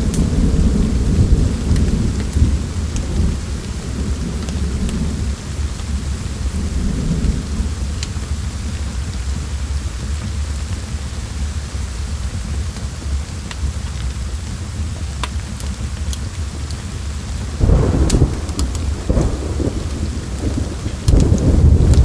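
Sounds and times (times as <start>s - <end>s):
thunder rumbling: 0.0s - 10.2s, 16.4s - 22.0s
steady rain: 0.0s - 22.0s
wood fire popping: 14.4s - 22.0s.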